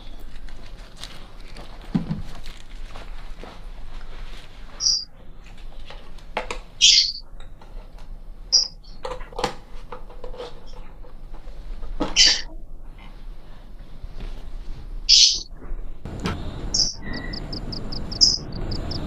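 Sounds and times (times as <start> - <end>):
small birds chirping: 4.8 - 5.1, 6.8 - 7.3, 8.5 - 9.0, 12.2 - 12.5, 15.1 - 15.5, 16.1 - 19.0.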